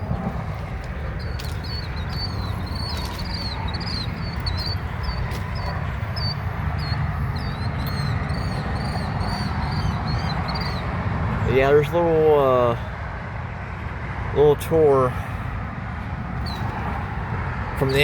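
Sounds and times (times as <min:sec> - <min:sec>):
steady low rumble: 0:00.0 - 0:11.4
small bird chirping: 0:01.1 - 0:10.9.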